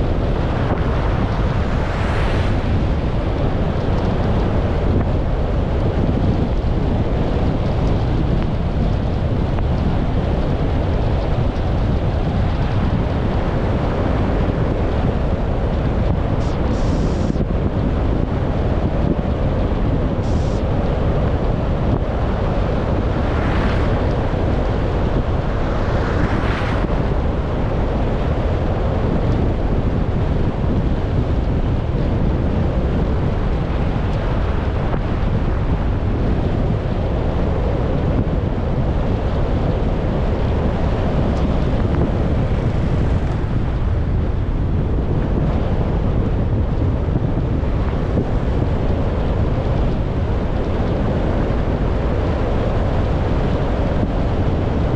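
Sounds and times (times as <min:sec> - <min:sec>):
rushing swells: 0:00.0 - 0:05.5, 0:20.1 - 0:29.7
car road noise: 0:00.0 - 0:54.9
wind buffeting microphone: 0:00.0 - 0:54.9.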